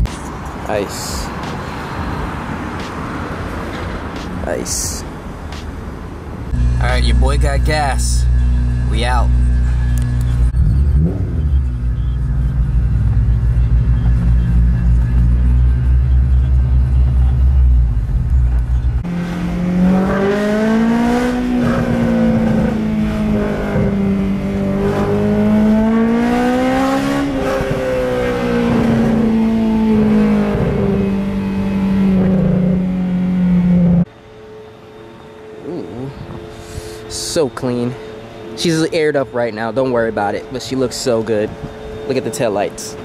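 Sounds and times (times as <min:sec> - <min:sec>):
car engine revving: 0:00.9 - 0:34.1.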